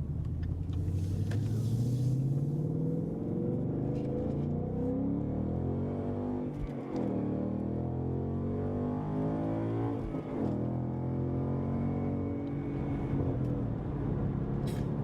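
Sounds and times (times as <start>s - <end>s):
car engine accelerating: 0.2s - 15.0s.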